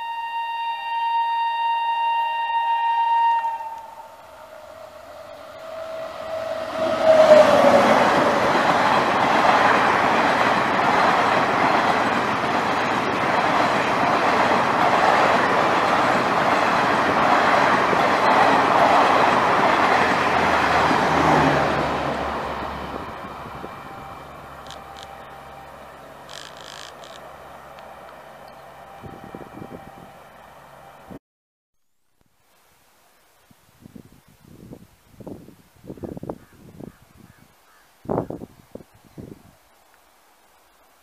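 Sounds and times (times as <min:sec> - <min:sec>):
train horn: 0:00.0 - 0:10.0, 0:16.6 - 0:31.2
train coaches rushing and rattling: 0:05.0 - 0:28.8.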